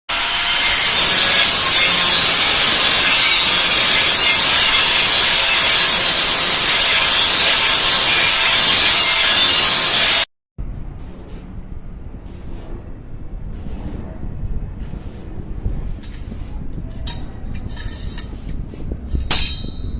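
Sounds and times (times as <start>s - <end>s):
power tool grinding steel: 0.1s - 10.3s.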